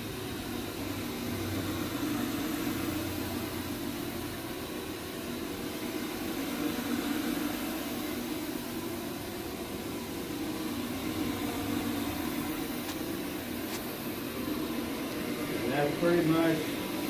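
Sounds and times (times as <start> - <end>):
carpet machine humming: 0.0 - 17.0.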